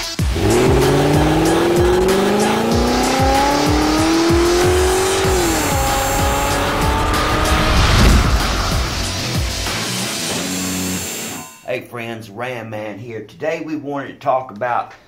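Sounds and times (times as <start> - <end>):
car engine revving: 0.0 - 11.2
music with a steady beat: 0.0 - 11.2.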